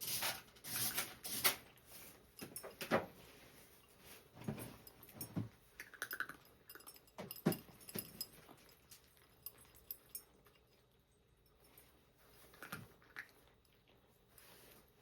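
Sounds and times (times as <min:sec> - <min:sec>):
cats eating dry food: 0:00.0 - 0:15.0
clinks against food dishes: 0:04.5 - 0:10.7.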